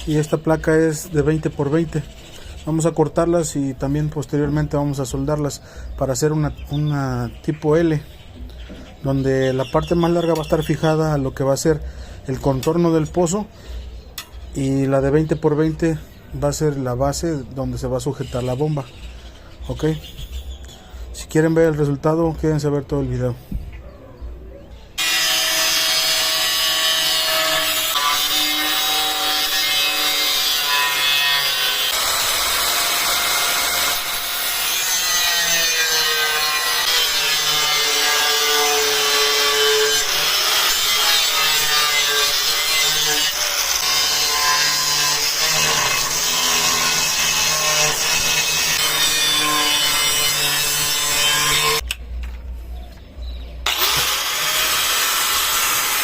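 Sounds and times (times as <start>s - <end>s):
power tool grinding steel: 25.0s - 51.9s, 53.6s - 56.0s.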